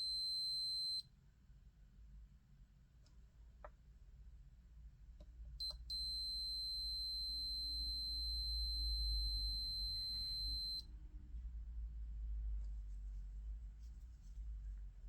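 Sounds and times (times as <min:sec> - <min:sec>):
multimeter beeper chirps: 0:00.0 - 0:01.0, 0:05.6 - 0:10.8
steady high beep: 0:00.0 - 0:01.0, 0:05.6 - 0:10.8.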